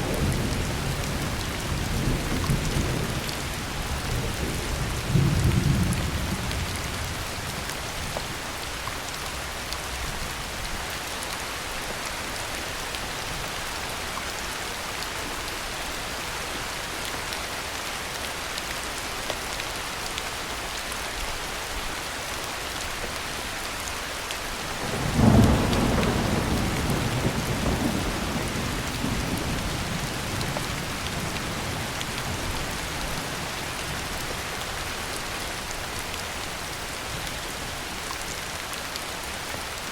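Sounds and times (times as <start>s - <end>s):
heavy rain falling: 0.0s - 39.9s
thunder rumbling: 24.8s - 31.9s.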